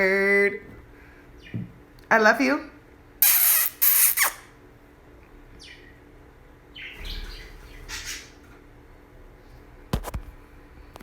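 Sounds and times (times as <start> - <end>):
budgerigar chirping: 3.2 - 4.4, 6.8 - 8.4.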